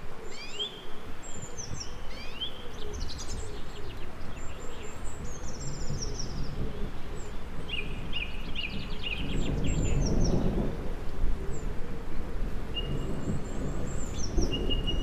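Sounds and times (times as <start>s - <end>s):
songbirds singing: 12.7s - 15.0s.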